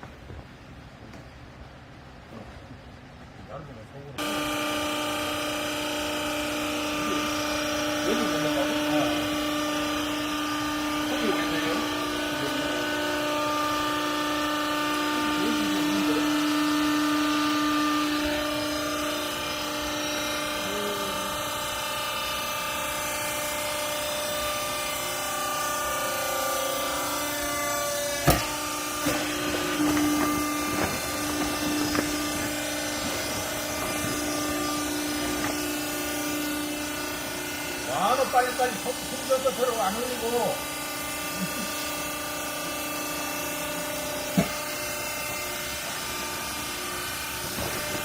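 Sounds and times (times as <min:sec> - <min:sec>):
hydraulic power unit whine: 0:00.0 - 0:48.0.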